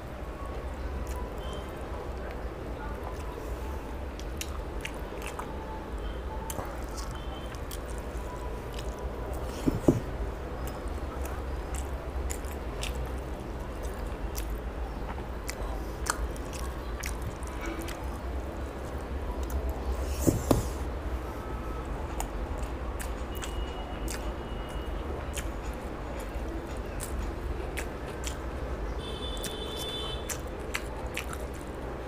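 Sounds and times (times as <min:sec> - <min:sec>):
wet chewing mouth sounds: 0:03.0 - 0:05.6, 0:06.5 - 0:20.0, 0:22.1 - 0:28.6, 0:29.2 - 0:31.8.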